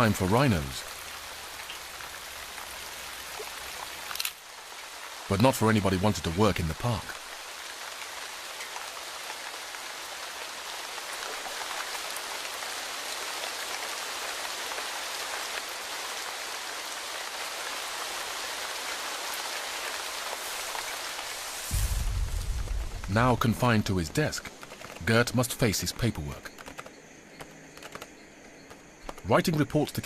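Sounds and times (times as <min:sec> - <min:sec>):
raindrop ticks: 0:00.0 - 0:04.5, 0:05.4 - 0:14.0, 0:20.7 - 0:30.0
steady rain hiss: 0:00.0 - 0:30.0.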